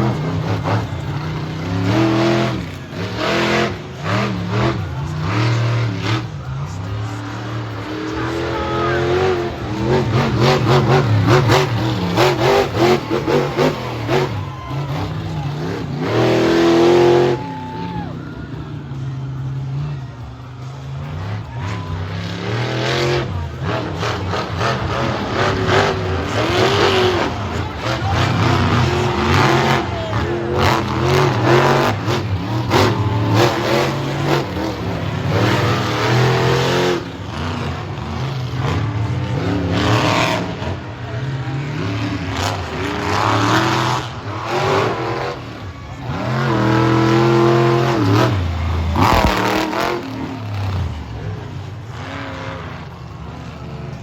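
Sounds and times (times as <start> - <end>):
truck engine revving hard: 0.0 - 54.0.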